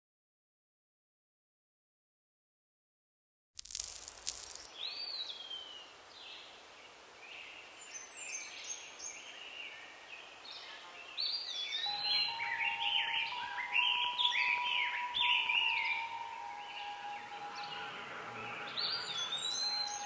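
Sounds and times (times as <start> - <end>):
wild birds calling and chirping: 4.8 - 20.0.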